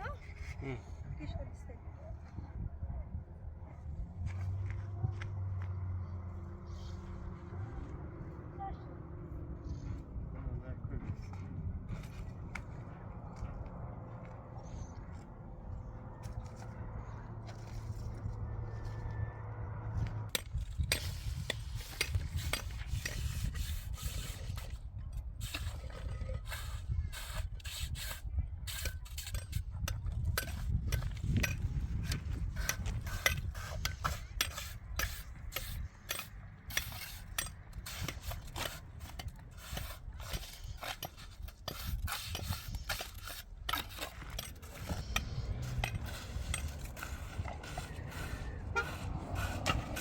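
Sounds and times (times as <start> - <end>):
steady low rumble: 0.0 - 50.0
short knocks and scrapes: 20.0 - 50.0.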